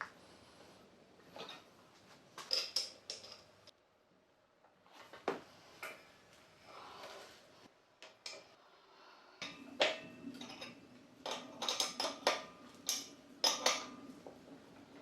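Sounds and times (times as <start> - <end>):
metal parts clinking: 2.4 - 3.6
steady low hum: 5.4 - 15.0.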